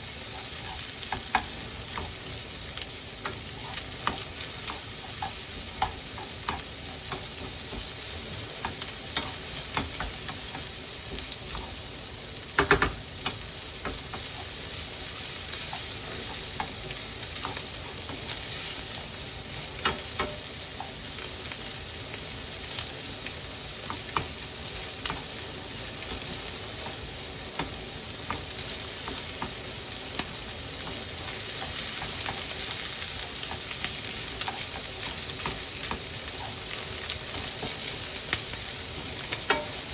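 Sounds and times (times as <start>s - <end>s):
rice sizzling in a frying pan: 0.0s - 39.9s
spatula scraping a pan: 0.2s - 2.4s, 3.0s - 11.9s.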